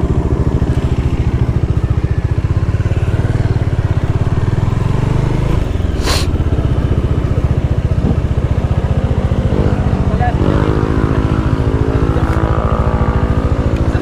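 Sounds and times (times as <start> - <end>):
motorcycle engine and exhaust: 0.0 - 14.0
brief hiss: 6.0 - 6.3.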